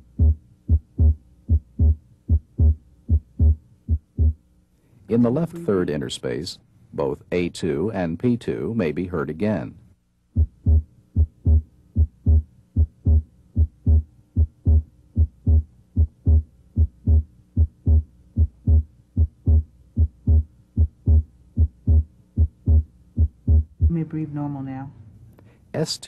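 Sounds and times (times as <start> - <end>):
heartbeat through stethoscope: 0.0 - 4.4, 10.4 - 24.0.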